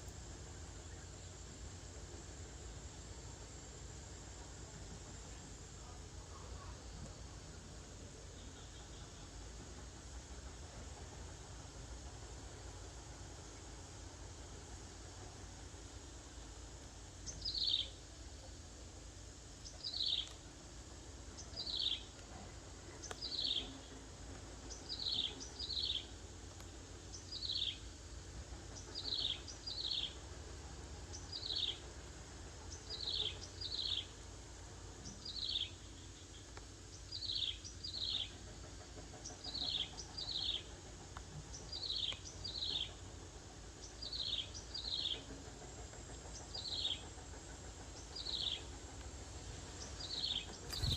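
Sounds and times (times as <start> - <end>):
bird chirping: 50.0 - 50.9.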